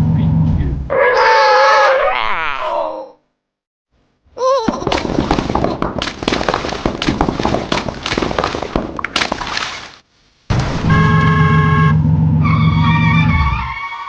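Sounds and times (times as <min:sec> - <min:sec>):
firecracker-like crackling pops: 0:04.7 - 0:10.9.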